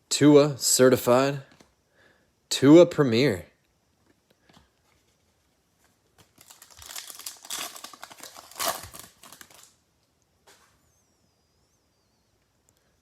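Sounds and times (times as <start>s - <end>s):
foil wrapper crinkling and tearing: 6.2s - 9.8s.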